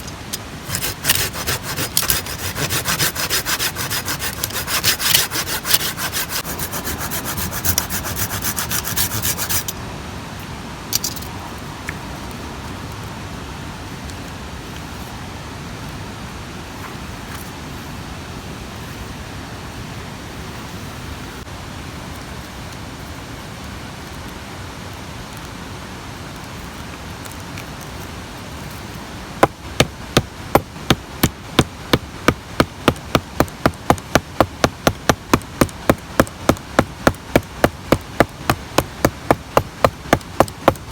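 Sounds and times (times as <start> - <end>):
outdoor background noise: 0.0 - 40.9
hand saw cutting wood: 0.6 - 9.7, 29.4 - 40.9.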